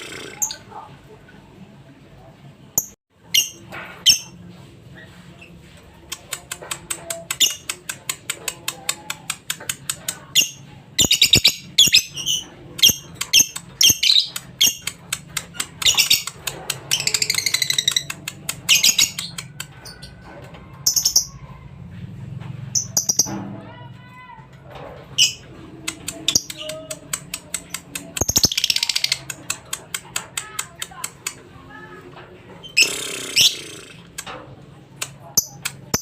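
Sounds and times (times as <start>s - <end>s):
lovebird chirps and trills: 15.8s - 20.0s, 22.7s - 23.3s, 26.2s - 29.3s.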